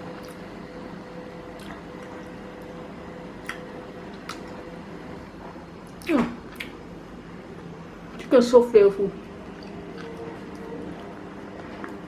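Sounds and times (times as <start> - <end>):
steady background hum: 0.0 - 12.0
wet chewing and mouth smacks: 1.5 - 2.3, 3.4 - 4.6, 5.9 - 6.8.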